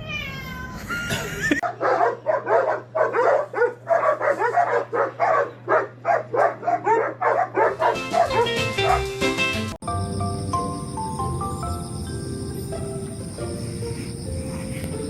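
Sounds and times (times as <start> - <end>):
dog barking rapidly: 1.6 - 9.2
steady low hum: 9.8 - 15.0.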